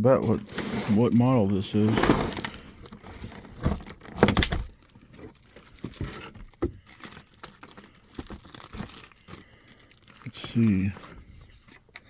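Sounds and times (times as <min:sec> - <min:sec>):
box handling knocks and rustles: 0:00.2 - 0:06.8.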